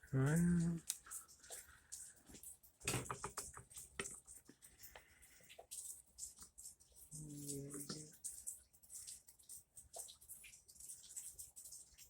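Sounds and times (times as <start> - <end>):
small tools clicking and tapping: 1.9 - 5.1.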